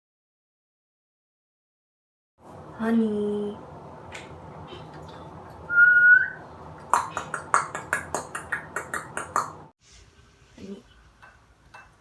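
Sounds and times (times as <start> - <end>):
short whistle: 5.7 - 6.4
sharp taps: 6.8 - 9.7.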